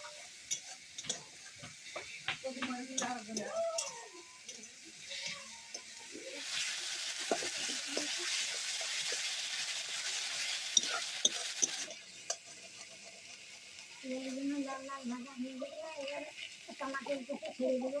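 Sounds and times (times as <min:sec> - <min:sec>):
food sizzling in hot oil: 0:00.0 - 0:18.0
utensil clicking against pan: 0:00.4 - 0:06.0.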